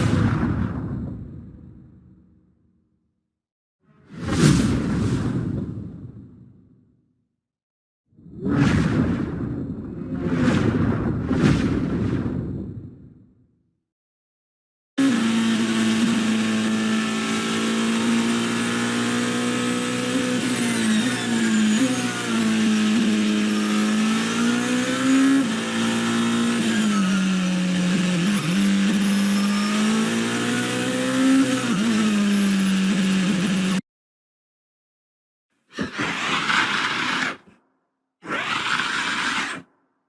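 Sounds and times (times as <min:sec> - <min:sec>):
engine running: 0:15.0 - 0:33.8.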